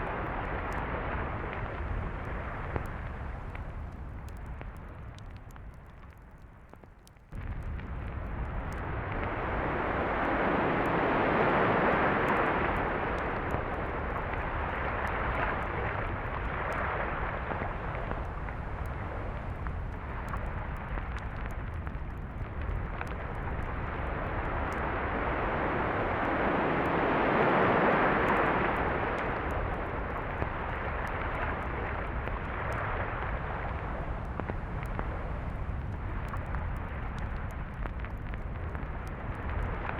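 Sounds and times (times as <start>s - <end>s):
waves breaking on a beach: 9.6s - 15.6s, 24.0s - 31.8s.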